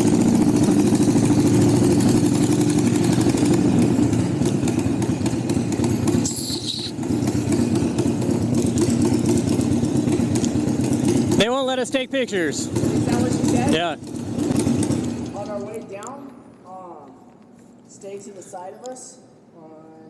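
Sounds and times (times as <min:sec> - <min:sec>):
motorcycle engine running: 0:00.0 - 0:15.9
high-pitched squeak: 0:06.2 - 0:07.0.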